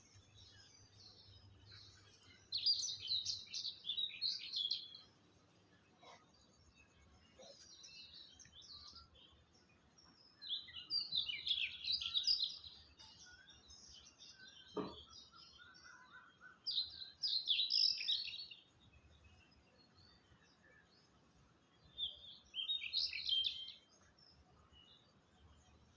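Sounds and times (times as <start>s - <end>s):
small birds chirping: 0.0s - 25.9s
short knock: 14.8s - 15.1s.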